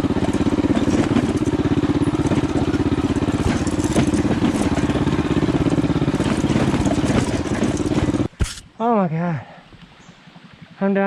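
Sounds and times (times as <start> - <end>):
small engine running: 0.0 - 8.6.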